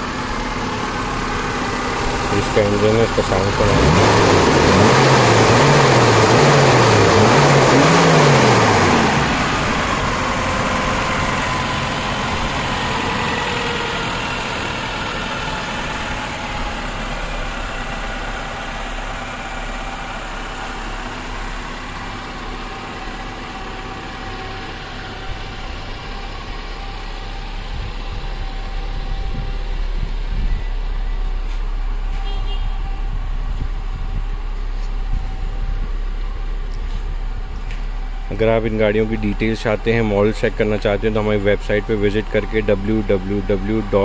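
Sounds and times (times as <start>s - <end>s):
car engine revving: 0.0s - 32.2s
car engine idling: 0.0s - 44.0s.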